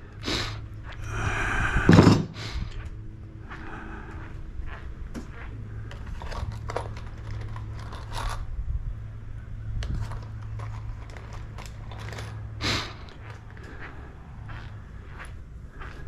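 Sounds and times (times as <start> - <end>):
steady low hum: 0.0 - 16.0
small metal items clinking: 5.9 - 8.5, 9.8 - 12.6
metal scraping clatter: 6.0 - 8.5, 9.8 - 12.6.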